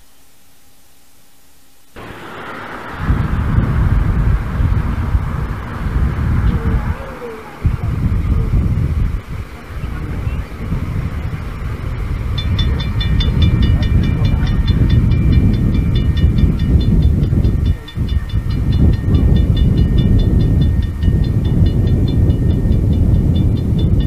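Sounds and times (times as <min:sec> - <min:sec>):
train rumbling: 0:02.0 - 0:24.0.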